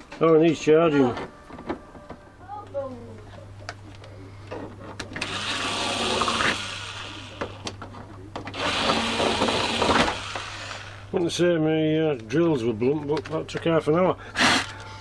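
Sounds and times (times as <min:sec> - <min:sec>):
power drill boring through plastic: 0:05.2 - 0:07.7, 0:08.5 - 0:11.0, 0:14.4 - 0:14.8.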